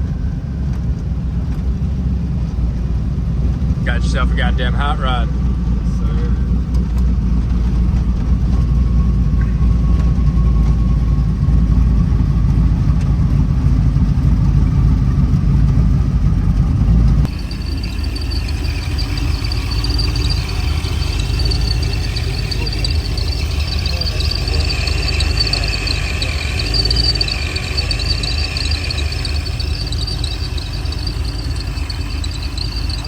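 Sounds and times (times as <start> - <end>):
car engine and road rumble: 0.0 - 33.0
faint high whine: 2.7 - 6.7, 17.3 - 33.0.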